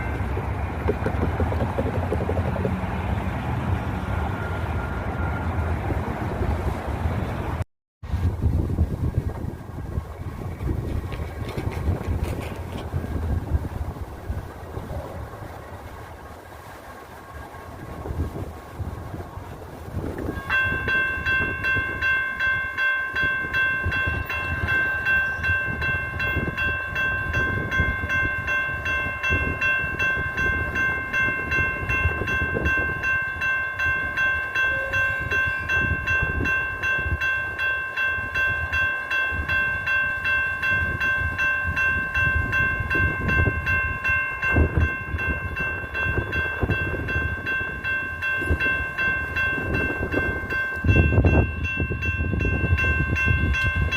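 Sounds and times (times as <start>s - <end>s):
pulsing high ringing tone: 0.0s - 2.9s, 20.3s - 53.9s
train rumbling on track: 0.0s - 53.9s.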